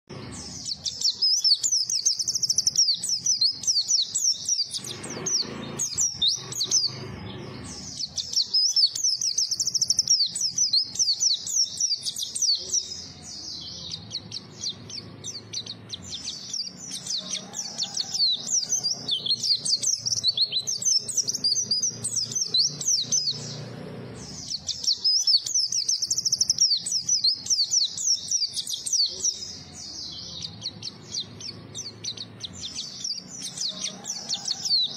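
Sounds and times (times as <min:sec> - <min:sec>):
bird high twittering song: 0:00.1 - 0:34.9.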